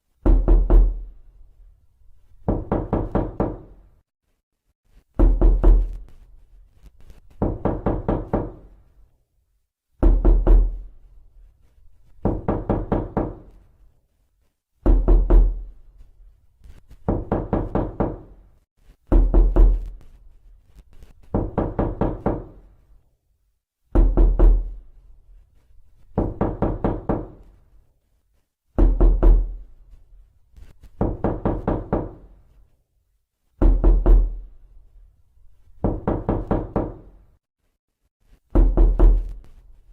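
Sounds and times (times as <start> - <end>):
knocking on a door: 0.2 - 1.1, 2.4 - 3.8, 5.2 - 6.0, 7.4 - 8.8, 10.0 - 10.9, 12.2 - 13.6, 14.8 - 15.7, 17.0 - 18.4, 19.1 - 19.9, 21.3 - 22.6, 23.9 - 24.8, 26.2 - 27.5, 28.8 - 29.6, 31.0 - 32.4, 33.6 - 34.4, 35.8 - 37.2, 38.5 - 39.4.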